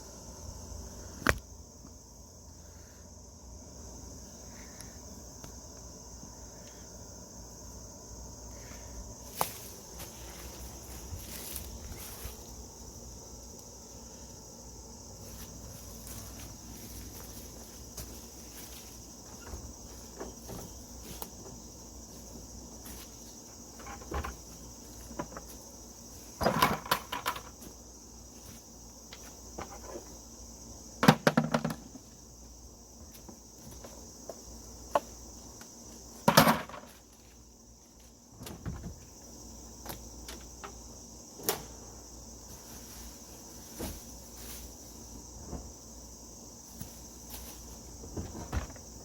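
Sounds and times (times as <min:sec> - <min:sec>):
insects buzzing: 0:00.0 - 0:49.0
objects clunking and clattering: 0:23.7 - 0:25.6, 0:26.3 - 0:27.8, 0:31.0 - 0:32.1, 0:36.2 - 0:37.0, 0:48.0 - 0:49.0.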